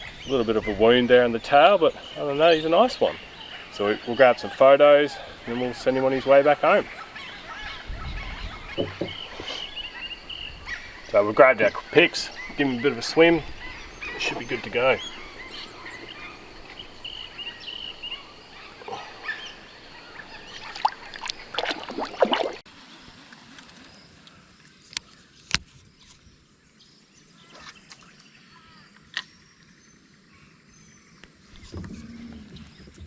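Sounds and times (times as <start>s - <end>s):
short bird calls: 0.0s - 22.6s
creek water: 0.0s - 24.2s
sharp splashes and knocks: 19.9s - 22.6s.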